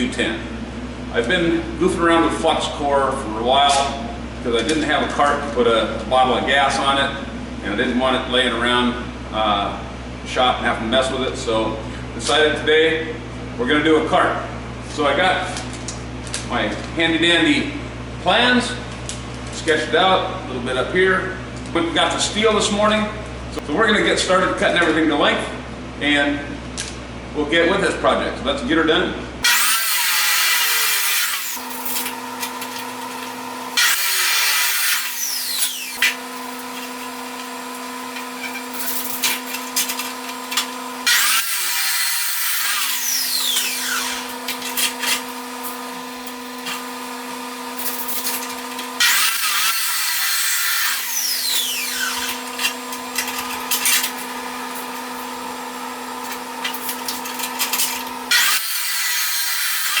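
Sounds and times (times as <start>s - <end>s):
power saw cutting steel: 29.4s - 60.0s.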